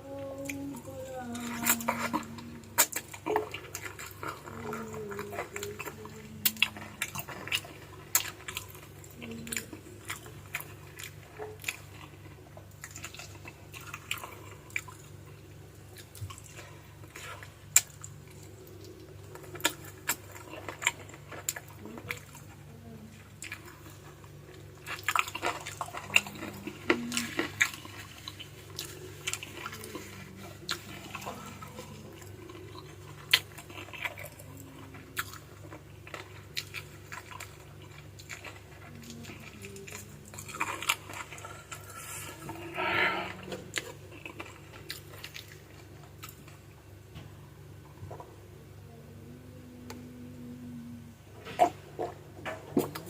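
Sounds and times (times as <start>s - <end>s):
person chewing: 0.4s - 53.0s
crunching of bones and cartilage: 1.4s - 22.6s, 23.2s - 42.5s.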